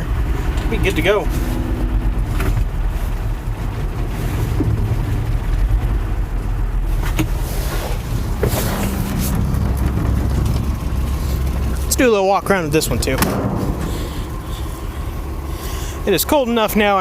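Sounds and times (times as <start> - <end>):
engine idling unevenly: 0.0 - 17.0.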